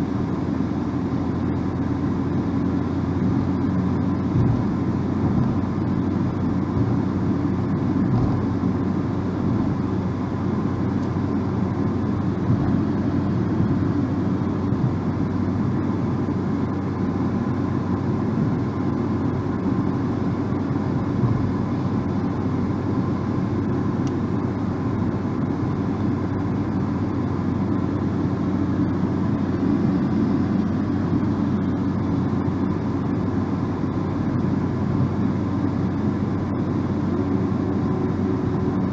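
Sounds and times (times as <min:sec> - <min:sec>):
engine drone: 0:00.0 - 0:38.9.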